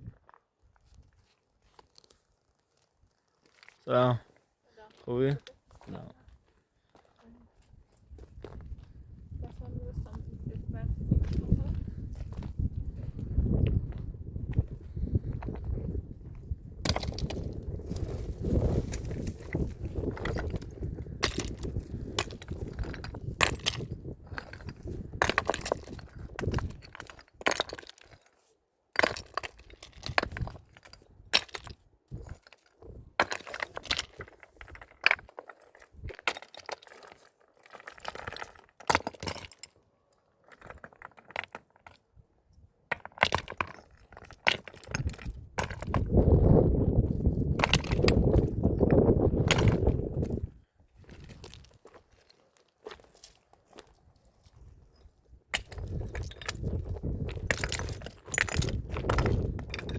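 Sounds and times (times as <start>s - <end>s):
wind rumble on microphone: 8.0s - 27.0s, 44.9s - 51.7s, 54.6s - 59.9s
stones clacking together: 14.6s - 59.9s.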